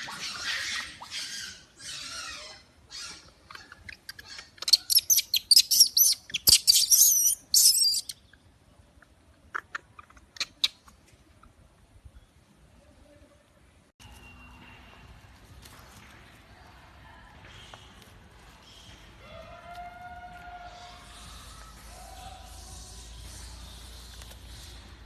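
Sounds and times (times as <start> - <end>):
baby monkey screaming: 0.0 - 8.1.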